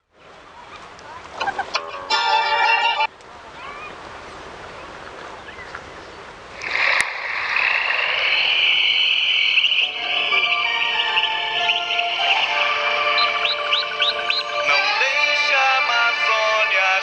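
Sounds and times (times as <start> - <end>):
frogs croaking: 6.6 - 15.2.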